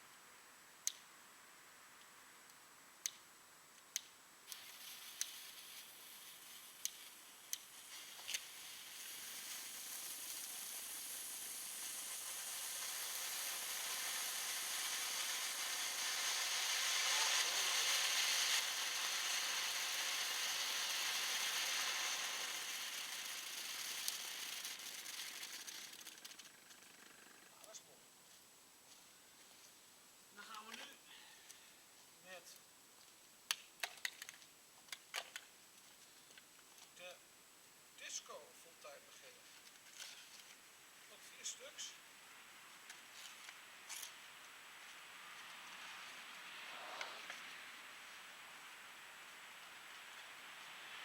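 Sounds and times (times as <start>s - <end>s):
firework sparks hissing: 4.4s - 27.1s, 38.0s - 51.0s.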